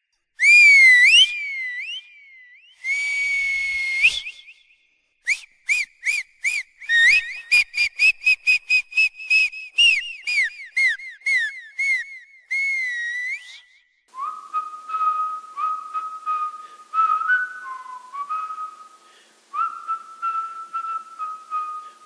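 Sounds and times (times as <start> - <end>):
person whistling: 0.4 - 22.0.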